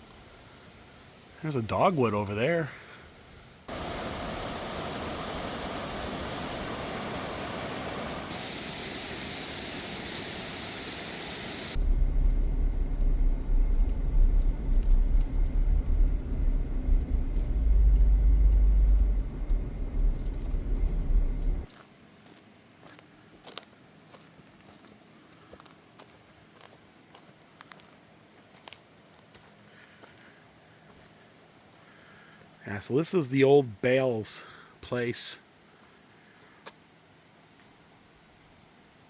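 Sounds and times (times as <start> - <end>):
road noise: 11.7 - 21.7
uneven low rumble: 11.8 - 21.7.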